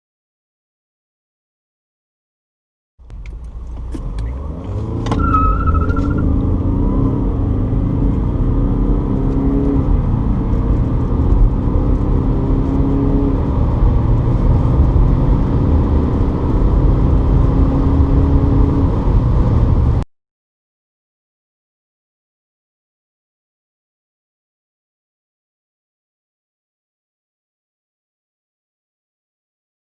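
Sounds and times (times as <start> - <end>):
car engine accelerating hard: 3.0 - 20.0
steady low rumble: 13.3 - 20.0.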